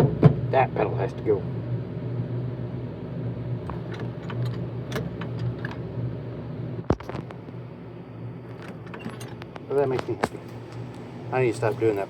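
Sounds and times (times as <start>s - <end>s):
steady low hum: 0.0s - 12.0s
brake pedal clicks: 3.7s - 5.8s.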